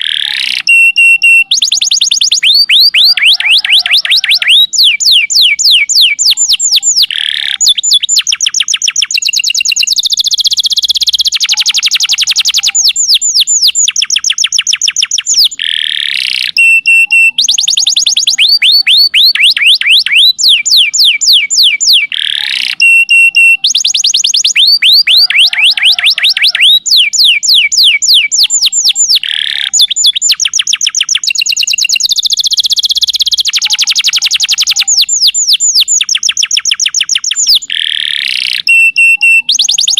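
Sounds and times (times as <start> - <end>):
canary singing rapid trills: 0.0 - 39.9.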